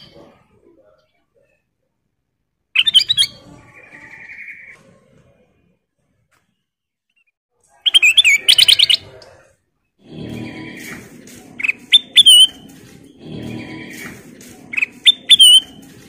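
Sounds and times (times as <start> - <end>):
bird chirping: 2.7 - 4.8, 10.0 - 16.0.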